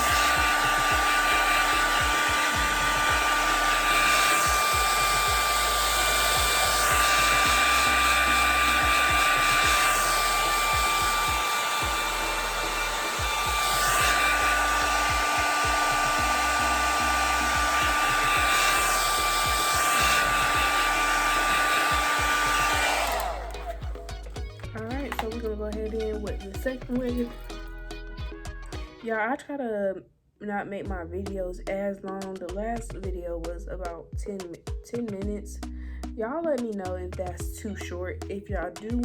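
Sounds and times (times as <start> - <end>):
hair dryer blowing with high whine: 0.0 - 27.5.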